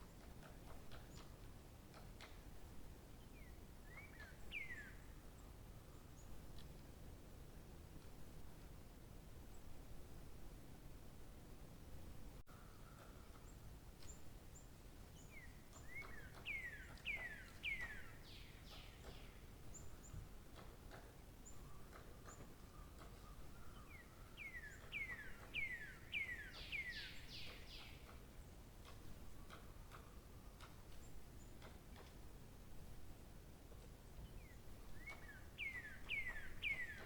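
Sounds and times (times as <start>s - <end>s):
songbird singing: 0.0s - 6.9s, 12.4s - 32.3s, 33.8s - 37.0s
faint background hiss: 0.0s - 37.0s.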